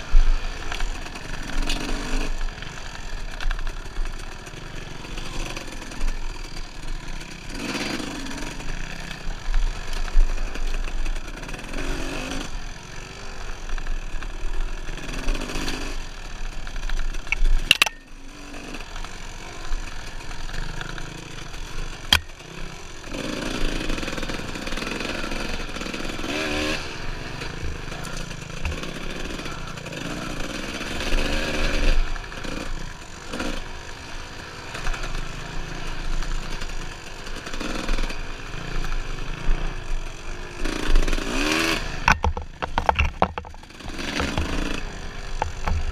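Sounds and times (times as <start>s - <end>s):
dirt bike engine revving: 0.0s - 45.9s
sharp knocks: 42.1s - 44.6s.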